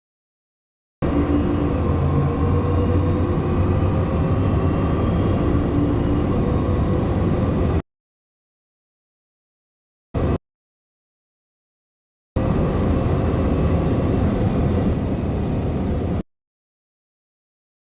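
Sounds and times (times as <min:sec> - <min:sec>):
car engine accelerating: 0:01.0 - 0:07.8.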